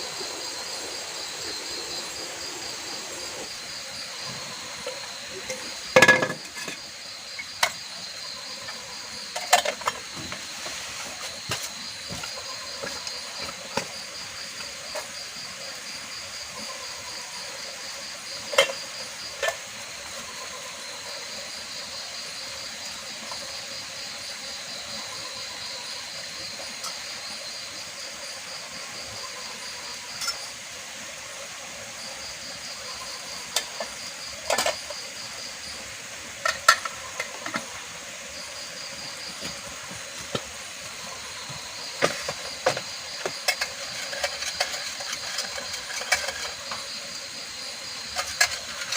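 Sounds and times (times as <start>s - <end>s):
insects chirping trill: 0.0s - 48.9s
cookware clinking: 4.9s - 6.8s.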